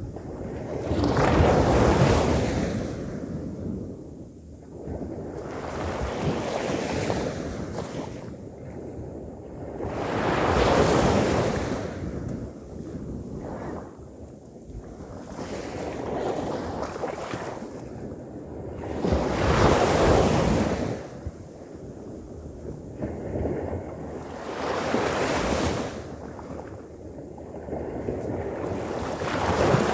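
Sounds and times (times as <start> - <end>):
ocean waves breaking on beach: 0.0 - 3.4, 9.4 - 14.0, 18.6 - 29.9
wind buffeting microphone: 0.0 - 29.9
waves breaking on shore: 23.0 - 26.8, 27.7 - 29.9.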